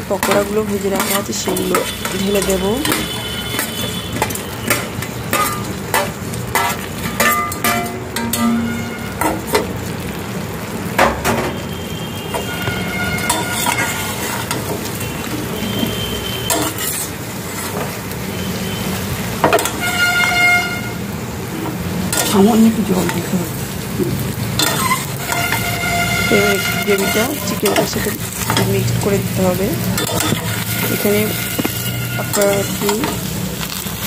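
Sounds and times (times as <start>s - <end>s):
chicken sizzling in a pan: 0.0s - 34.0s
spatula scraping and clicking: 0.2s - 9.7s, 13.2s - 14.8s, 16.5s - 18.0s, 24.6s - 28.8s, 29.9s - 33.9s
horn-like tone: 1.7s - 5.0s, 8.0s - 9.4s, 11.4s - 14.2s, 14.9s - 17.0s, 18.2s - 21.1s, 25.2s - 28.2s, 30.2s - 33.1s.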